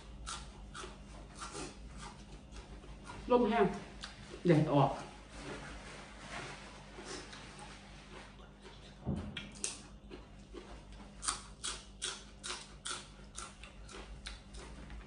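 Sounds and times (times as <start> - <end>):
person chewing crunchy food: 0.0 - 3.3, 6.8 - 15.0.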